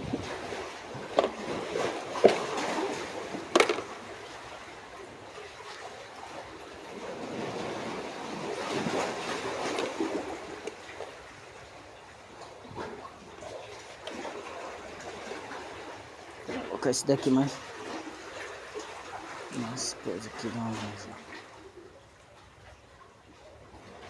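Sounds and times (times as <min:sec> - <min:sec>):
water lapping and splashing: 0:00.0 - 0:24.0
sharp knocks: 0:01.2 - 0:01.4, 0:03.6 - 0:03.9.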